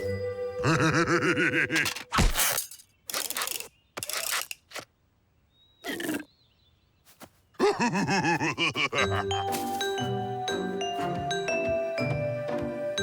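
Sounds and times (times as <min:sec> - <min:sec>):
music with bell-like notes: 0:09.1 - 0:13.0.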